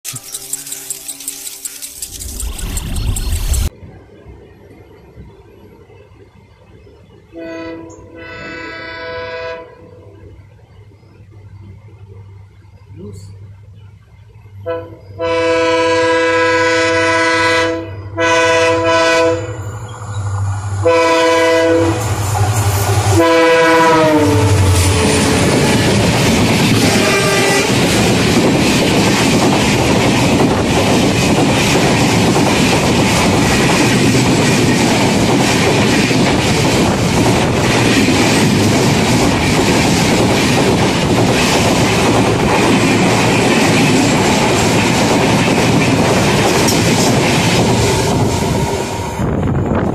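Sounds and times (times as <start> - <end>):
passing train rumble and wheel clatter: 0.1 - 49.9
train horn blasts: 7.3 - 10.2, 14.6 - 19.7, 20.8 - 22.2, 23.1 - 26.2, 26.8 - 27.9.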